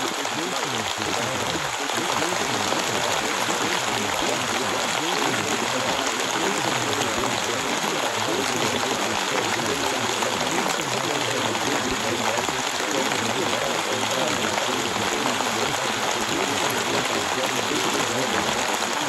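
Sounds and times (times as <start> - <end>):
murmur of voices: 0.0 - 19.0
rain hiss: 0.0 - 19.0.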